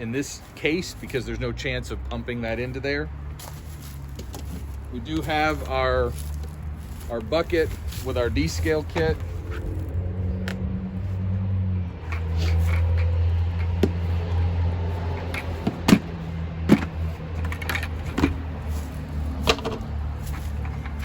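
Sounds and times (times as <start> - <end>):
knocks and clunks in a bucket: 15.2 - 18.5, 19.3 - 21.0.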